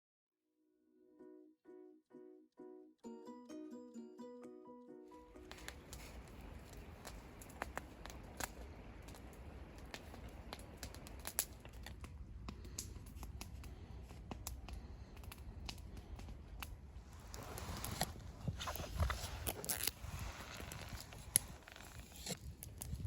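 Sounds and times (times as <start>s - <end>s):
small sharp clicks and scratches: 17.3s - 23.0s.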